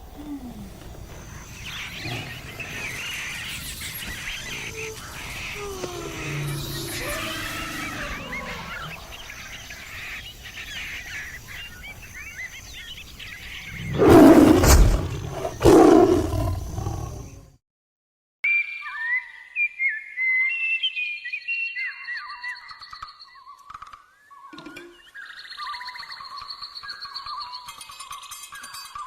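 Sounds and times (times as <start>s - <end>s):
many birds chirping: 0.2s - 17.4s
big cat roaring: 2.0s - 3.1s, 4.4s - 9.3s, 13.7s - 17.4s.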